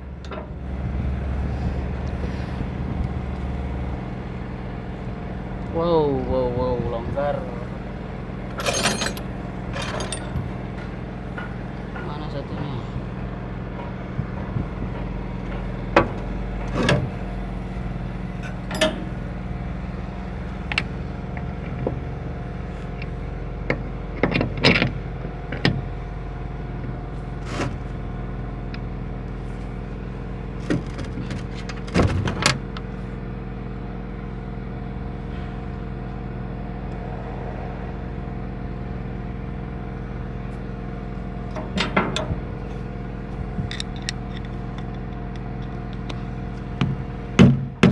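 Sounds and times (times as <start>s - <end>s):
engine idling: 0.0s - 47.9s
metal tool clanks: 8.5s - 12.3s, 18.3s - 22.0s, 41.5s - 47.0s.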